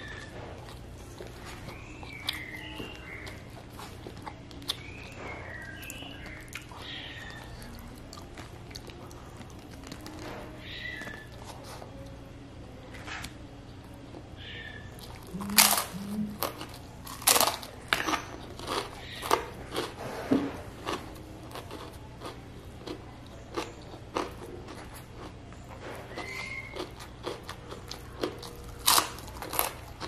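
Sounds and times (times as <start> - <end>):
quiet chewing: 0.0 - 30.0
crunching cracker bites: 15.0 - 20.0, 20.8 - 30.0.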